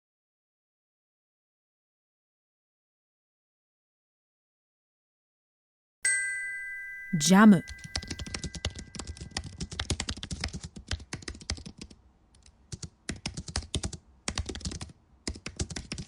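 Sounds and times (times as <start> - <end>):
computer keyboard typing: 8.0 - 11.9, 13.1 - 16.0.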